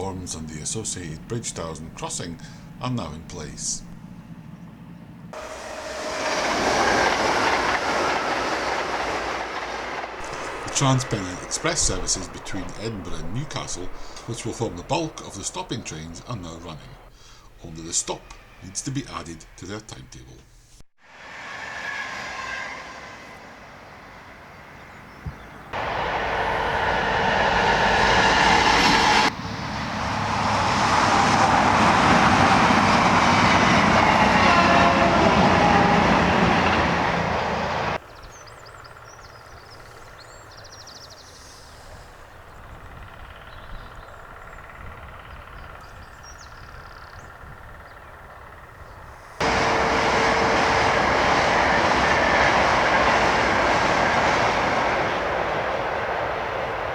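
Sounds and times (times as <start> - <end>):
trains passing through: 0.0 - 56.9.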